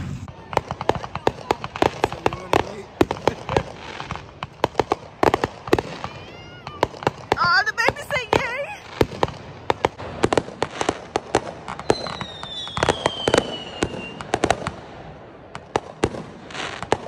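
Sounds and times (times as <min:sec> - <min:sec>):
fireworks bangs and crackles: 0:00.0 - 0:17.0
falling firework whistle: 0:11.7 - 0:14.4.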